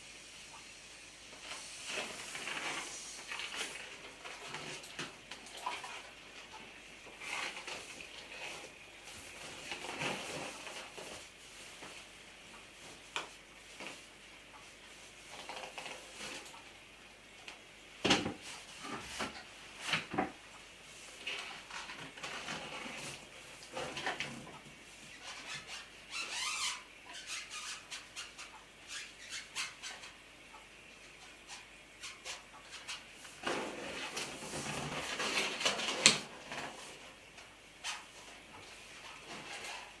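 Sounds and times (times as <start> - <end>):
marker squeaking on balloon: 25.2 - 30.1.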